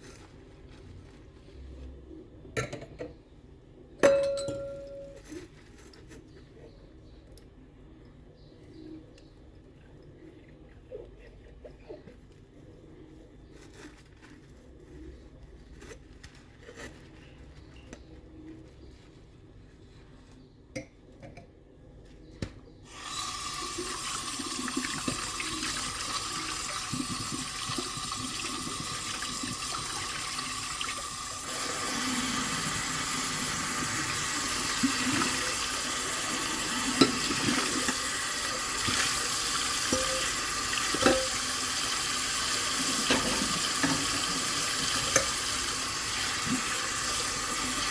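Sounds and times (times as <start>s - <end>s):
water running into sink: 22.9s - 47.9s.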